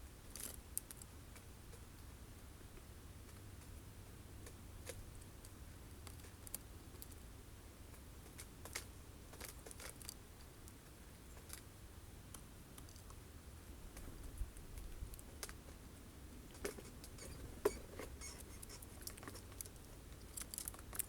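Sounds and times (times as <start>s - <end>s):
birds pecking at seeds: 0.3s - 1.9s, 7.9s - 21.0s.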